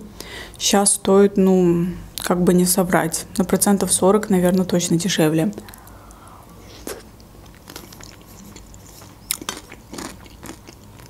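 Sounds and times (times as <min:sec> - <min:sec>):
chewing soup: 0:05.6 - 0:11.0.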